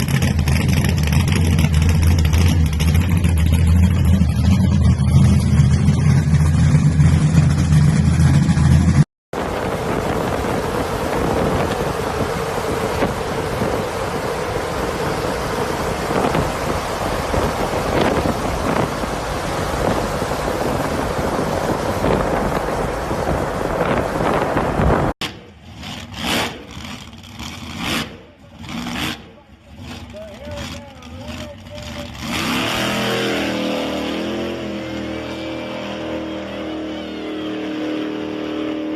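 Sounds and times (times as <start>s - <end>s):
vehicle engine humming: 0.0s - 38.9s
loud rushing noise: 6.2s - 25.4s.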